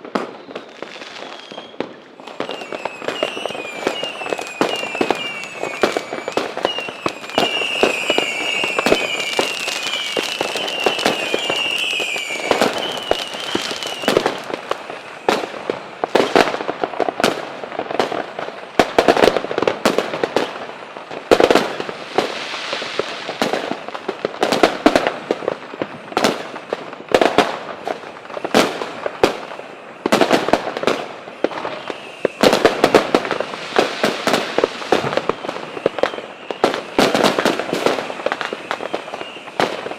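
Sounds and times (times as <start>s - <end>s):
fireworks bangs and crackling: 0.0s - 39.9s
high warbling whistle: 0.6s - 14.2s.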